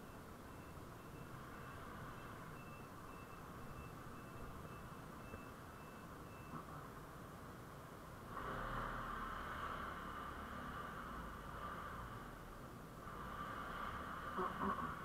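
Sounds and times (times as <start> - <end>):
vehicle warning beeper pulses: 0.0 - 6.8
faint engine and road hum: 0.0 - 15.0
steady rushing noise: 8.3 - 15.0.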